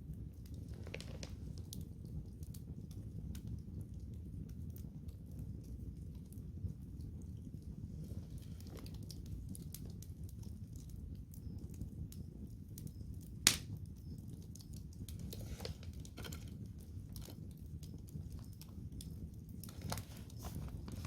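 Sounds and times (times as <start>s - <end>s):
campfire crackling: 0.0s - 21.0s
sharp loud fire pop: 13.5s - 13.7s.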